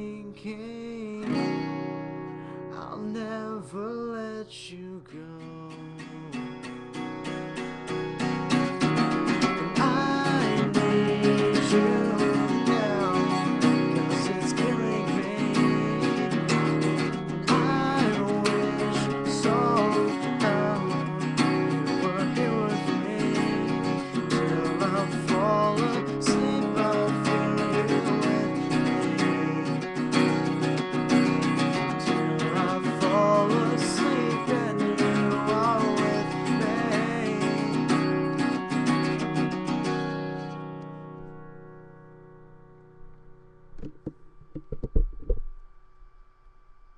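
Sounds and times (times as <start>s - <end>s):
acoustic guitar strumming: 0.0s - 46.9s.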